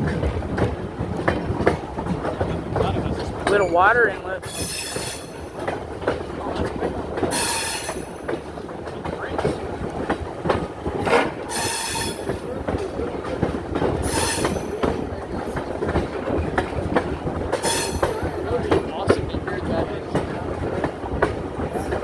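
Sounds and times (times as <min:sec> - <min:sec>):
train rumbling along track: 0:00.0 - 0:22.0
wheels clicking over rail joints: 0:00.0 - 0:22.0
high-pitched wheel squeals: 0:11.5 - 0:12.3.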